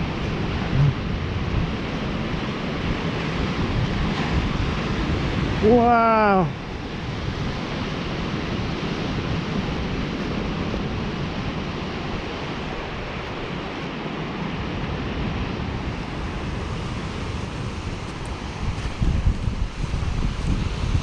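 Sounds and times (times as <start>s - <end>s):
steady continuous rush: 0.0s - 21.0s
wind buffeting microphone: 0.0s - 21.0s.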